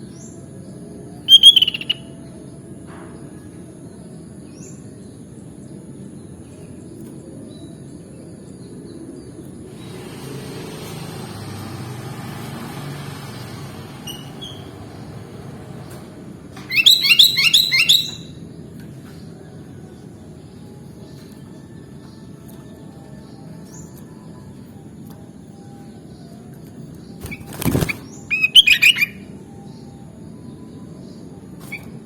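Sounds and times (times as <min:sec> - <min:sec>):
bird chirping notes: 0:00.0 - 0:02.5, 0:16.6 - 0:32.0.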